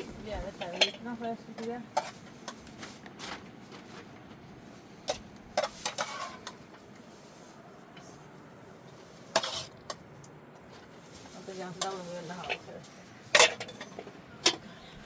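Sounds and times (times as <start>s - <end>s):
dishes and utensils clinking: 0.0s - 2.6s, 5.1s - 6.6s, 11.8s - 14.7s.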